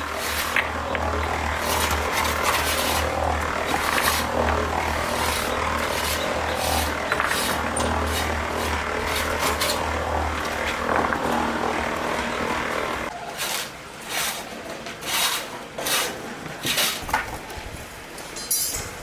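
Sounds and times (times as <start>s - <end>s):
motor humming: 0.0s - 13.1s.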